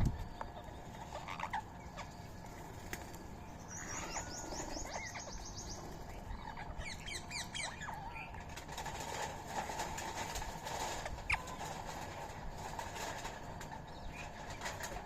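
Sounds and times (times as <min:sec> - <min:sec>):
birds chirping: 0:00.0 - 0:15.0
bird trilling: 0:03.5 - 0:08.4.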